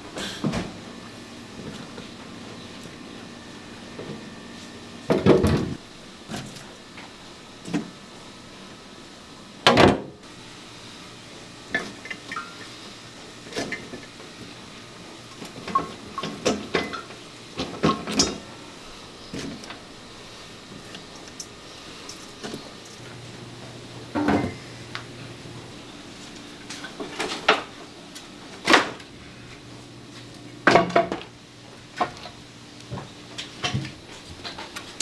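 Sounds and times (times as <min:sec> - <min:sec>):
background hum: 0:10.2 - 0:35.0.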